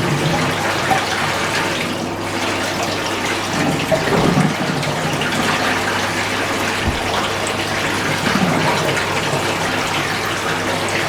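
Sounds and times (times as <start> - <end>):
water rushing into washing machine: 0.0 - 11.0.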